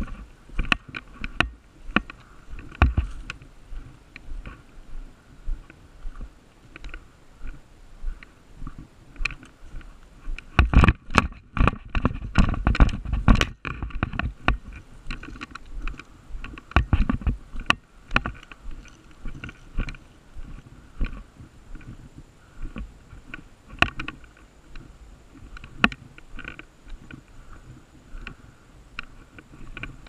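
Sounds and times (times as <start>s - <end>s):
dull low thuds: 0.0s - 6.4s.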